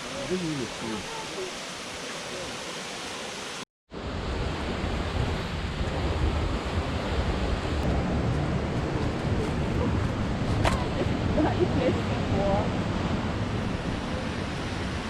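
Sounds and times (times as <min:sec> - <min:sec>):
waterfall roaring: 0:00.0 - 0:03.6.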